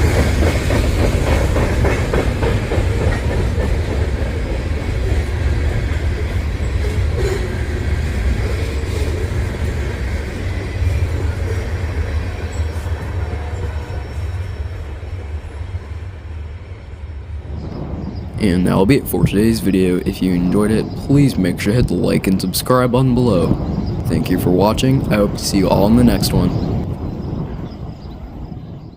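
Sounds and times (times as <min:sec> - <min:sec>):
wheels clacking on rail joints: 0:00.0 - 0:15.3
train rumbling over bridge: 0:00.0 - 0:28.9.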